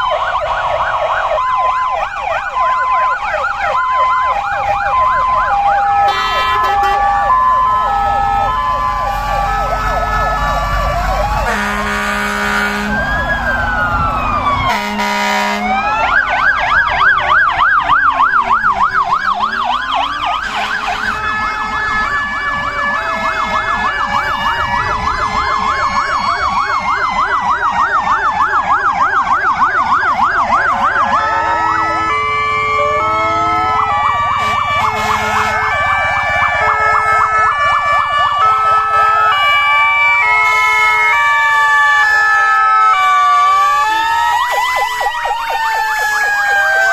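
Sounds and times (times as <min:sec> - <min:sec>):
emergency vehicle sirens: 0:00.0 - 0:46.9
short horn blasts: 0:06.1 - 0:07.1, 0:11.5 - 0:13.0, 0:14.7 - 0:15.8, 0:34.4 - 0:35.7.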